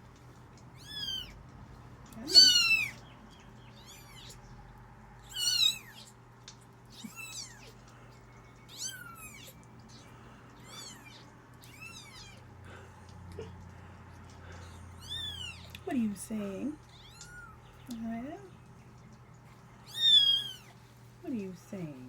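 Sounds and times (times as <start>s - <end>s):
kittens mewing: 0.8s - 1.4s, 2.2s - 3.0s, 3.7s - 4.5s, 5.2s - 6.2s, 6.9s - 7.9s, 8.6s - 15.8s, 16.8s - 17.8s, 19.8s - 20.8s.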